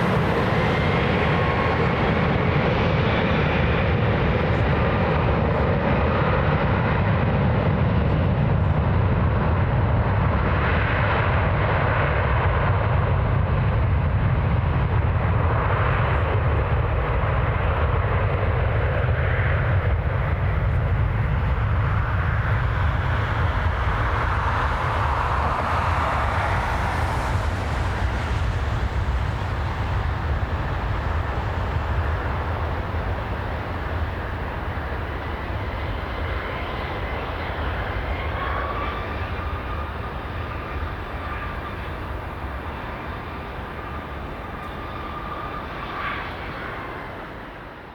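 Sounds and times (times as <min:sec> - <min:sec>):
jet engines rumbling: 0:00.0 - 0:47.9
thin steady whine: 0:20.0 - 0:47.9.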